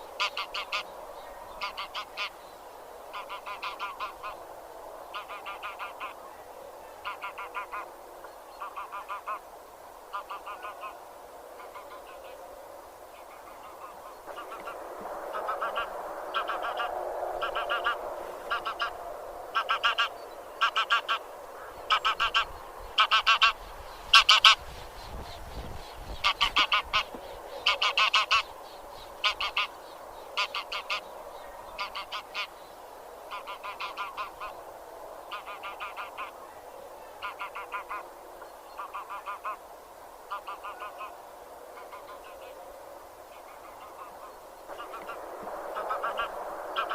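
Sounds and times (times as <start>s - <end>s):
background geese chatter: 0.0s - 46.9s
geese honking: 0.2s - 0.9s, 1.5s - 2.4s, 3.1s - 4.4s, 5.1s - 6.2s, 7.0s - 7.9s, 8.6s - 9.4s, 10.1s - 11.0s, 11.6s - 12.4s, 13.2s - 24.6s, 26.1s - 28.5s, 29.2s - 29.8s, 30.4s - 31.1s, 31.7s - 32.5s, 33.3s - 34.6s, 35.3s - 36.4s, 37.1s - 38.1s, 38.8s - 39.6s, 40.3s - 41.1s, 43.5s - 46.9s.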